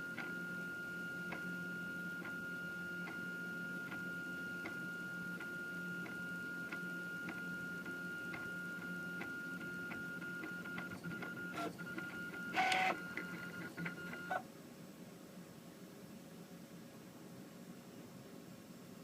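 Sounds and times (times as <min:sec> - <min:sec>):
printer buzz: 0:00.0 - 0:14.4
printer motor whine: 0:00.0 - 0:14.4
printer ticks: 0:09.2 - 0:14.3.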